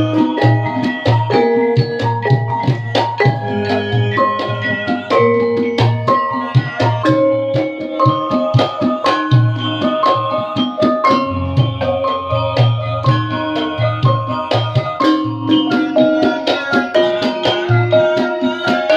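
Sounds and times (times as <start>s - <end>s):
gamelan metal keys ringing: 0.0s - 18.9s.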